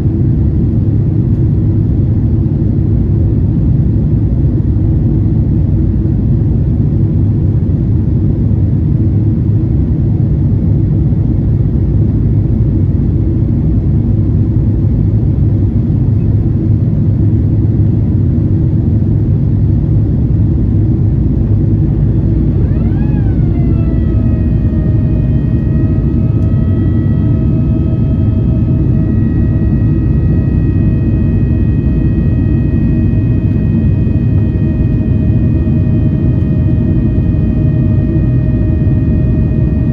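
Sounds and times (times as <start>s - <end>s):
jet airliner cabin rumble: 0.0s - 39.9s
whine with overtones: 14.1s - 39.9s.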